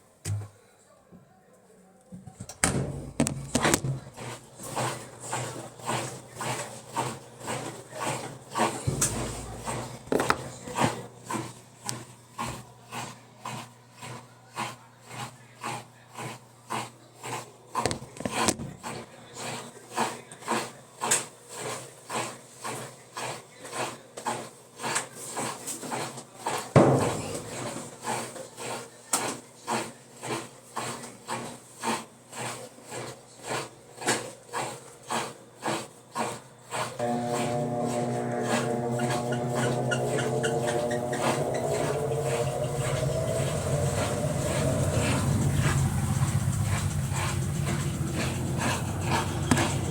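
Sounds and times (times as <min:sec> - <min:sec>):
washing machine running: 0:02.3 - 0:49.9
rubbing knock: 0:08.6 - 0:11.0, 0:37.0 - 0:49.9
loud knock: 0:08.9 - 0:10.5, 0:26.8 - 0:27.6.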